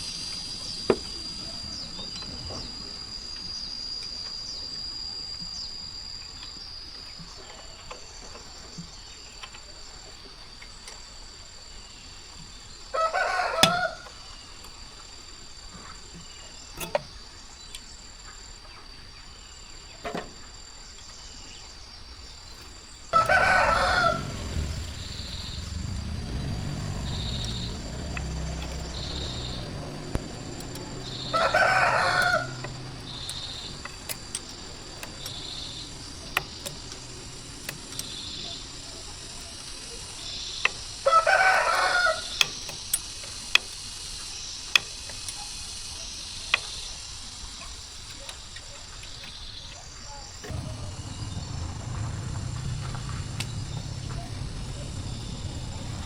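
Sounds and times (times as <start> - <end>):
rooster crowing: 12.9 - 14.1, 23.1 - 34.2, 41.0 - 42.4
low hum: 23.1 - 43.7, 50.2 - 56.0.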